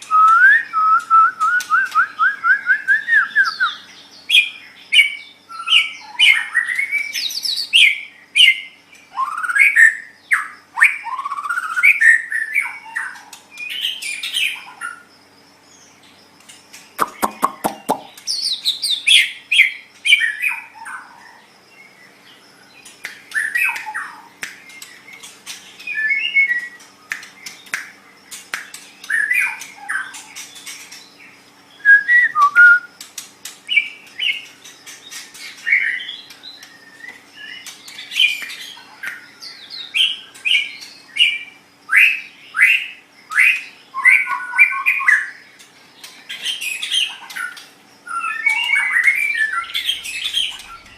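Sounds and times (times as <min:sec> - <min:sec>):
bird whistling and squawking: 0:00.1 - 0:08.6
sharp bird clicks: 0:16.4 - 0:18.6, 0:22.8 - 0:31.2, 0:33.0 - 0:41.1, 0:48.4 - 0:50.9.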